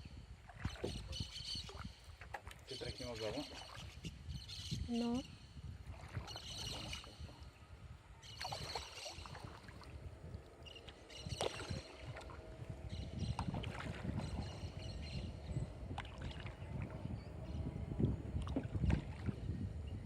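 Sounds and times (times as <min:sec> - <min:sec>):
paddle strokes: 0:00.4 - 0:04.1, 0:05.8 - 0:07.6, 0:08.2 - 0:12.6, 0:13.3 - 0:14.7
water lapping against hull: 0:00.4 - 0:20.0.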